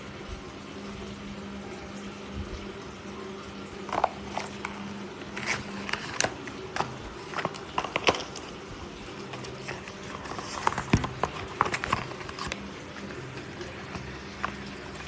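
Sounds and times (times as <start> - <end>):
low hum and hiss: 0.0 - 15.0
clicks taps and rustles of handling: 5.4 - 8.5, 9.3 - 12.7.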